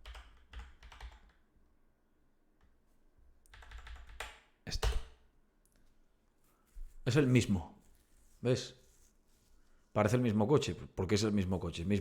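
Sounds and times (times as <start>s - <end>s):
keyboard typing: 0.0s - 1.4s, 3.5s - 5.0s.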